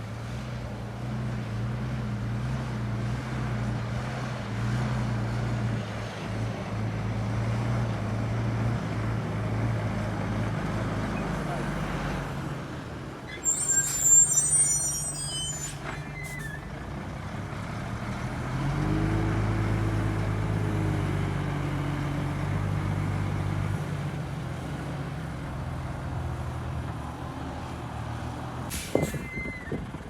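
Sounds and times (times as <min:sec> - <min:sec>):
high metallic squeal: 0:13.3 - 0:16.6.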